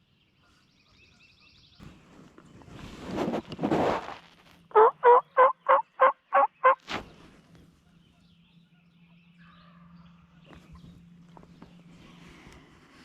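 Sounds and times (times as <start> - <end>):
turkey yelps: 4.7 - 6.8
faint low hum: 7.0 - 13.0.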